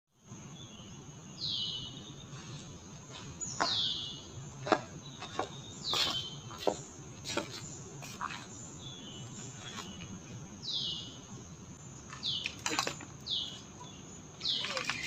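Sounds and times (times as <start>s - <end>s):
high insect drone: 0.2s - 15.0s.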